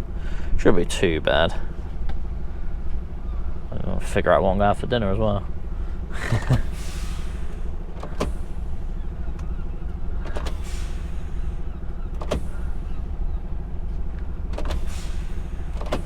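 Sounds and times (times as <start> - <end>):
diesel truck engine idling: 0.0 - 16.0
short air hiss: 6.6 - 8.6, 10.5 - 11.5, 14.8 - 15.7.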